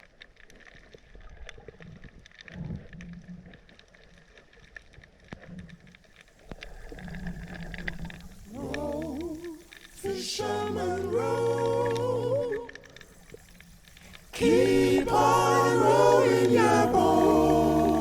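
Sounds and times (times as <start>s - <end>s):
underwater clicks and crackles: 0.0s - 18.0s
low underwater rumbling: 5.0s - 18.0s
music with sung melody: 8.5s - 13.0s, 14.4s - 18.0s.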